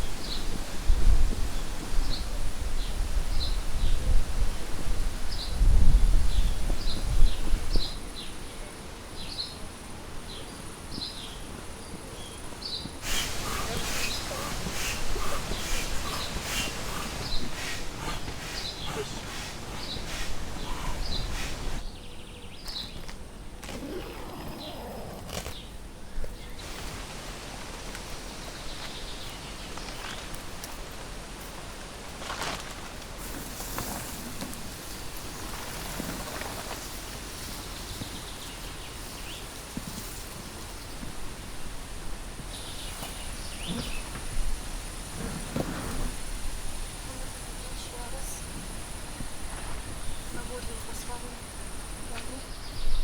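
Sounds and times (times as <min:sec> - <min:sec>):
steady hiss: 0:00.0 - 0:21.9, 0:25.5 - 0:53.0
bird chirping: 0:10.4 - 0:23.0
light rustling: 0:13.0 - 0:21.8.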